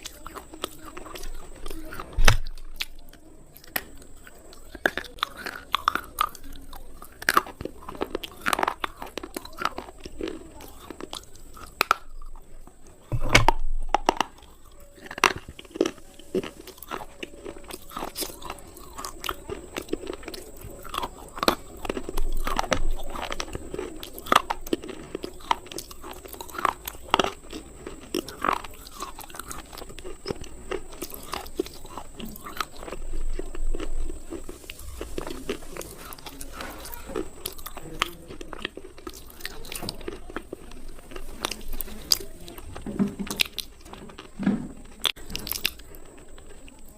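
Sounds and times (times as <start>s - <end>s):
slate pencils crunching when bitten: 0.0s - 46.9s.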